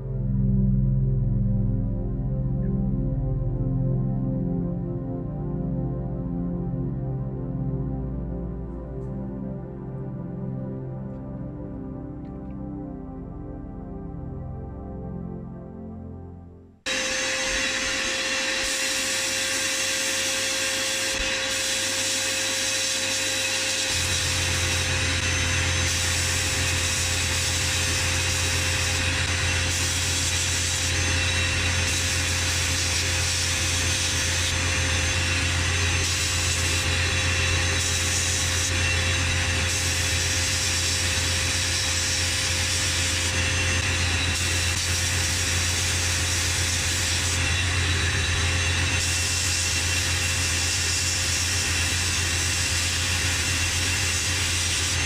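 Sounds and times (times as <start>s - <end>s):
deeper hum: 0.0s - 54.6s
power tool running: 16.9s - 55.0s.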